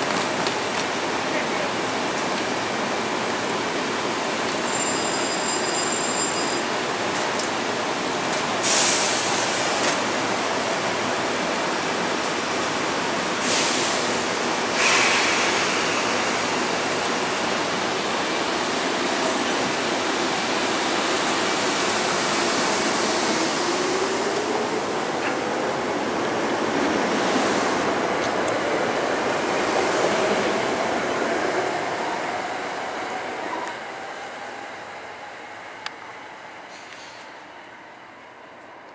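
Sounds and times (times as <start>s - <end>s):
air hisses: 14.7s - 16.6s.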